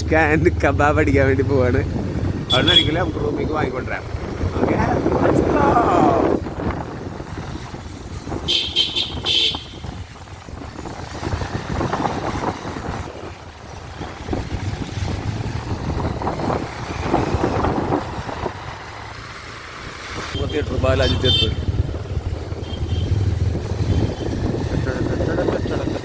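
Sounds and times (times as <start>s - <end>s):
road traffic: 0.0s - 26.0s
vehicle horn toots: 2.5s - 3.2s, 8.4s - 10.0s, 20.3s - 21.8s, 22.6s - 23.2s.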